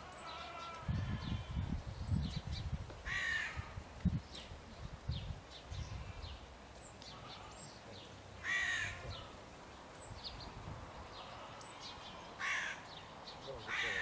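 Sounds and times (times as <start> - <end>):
small birds chirping: 0.0 - 3.1, 4.0 - 14.0
bird harsh call: 11.1 - 14.0.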